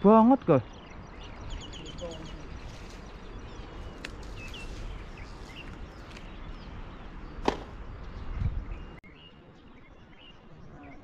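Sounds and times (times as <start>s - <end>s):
low outdoor background noise: 0.0s - 11.0s
small birds chirping: 0.0s - 11.0s
loud sharp knock: 7.4s - 7.7s.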